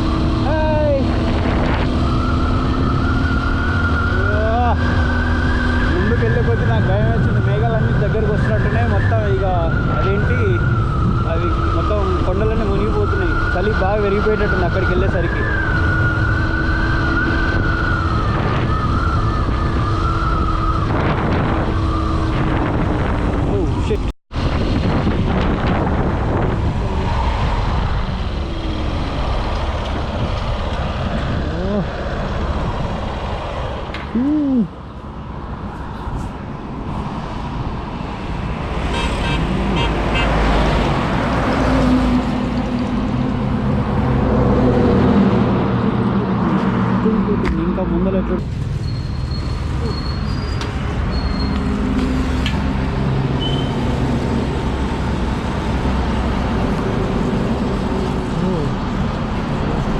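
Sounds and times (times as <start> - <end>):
tone rising and falling: 0.0 - 7.6
wind rumble on microphone: 0.0 - 47.6, 48.4 - 59.9
traffic: 0.0 - 59.9
nearby vehicle engine drone: 24.4 - 59.9.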